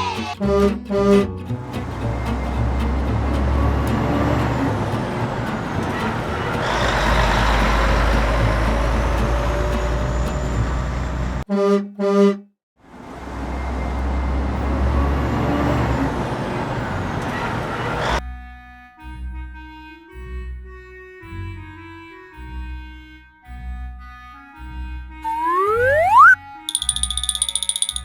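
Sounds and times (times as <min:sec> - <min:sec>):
truck horn toots: 0:00.0 - 0:10.9, 0:11.5 - 0:12.4
truck engine rumbling: 0:00.0 - 0:11.4, 0:12.9 - 0:18.2.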